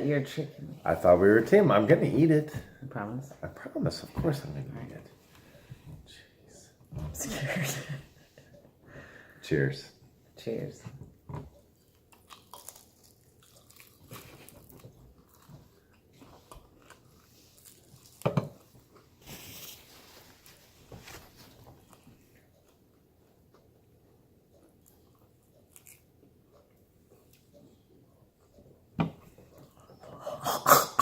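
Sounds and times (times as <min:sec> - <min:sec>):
people chewing chicken wings: 0:11.8 - 0:19.2.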